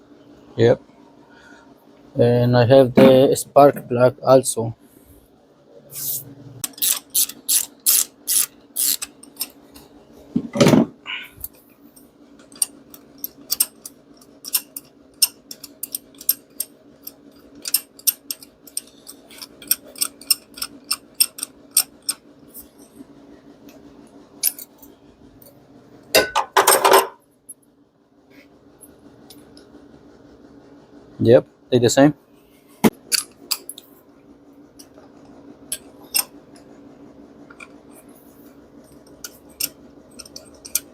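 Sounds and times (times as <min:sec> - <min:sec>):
faint steady hum: 0:00.0 - 0:40.9
small hard parts clicking: 0:06.6 - 0:09.6, 0:12.4 - 0:22.2, 0:39.0 - 0:40.9.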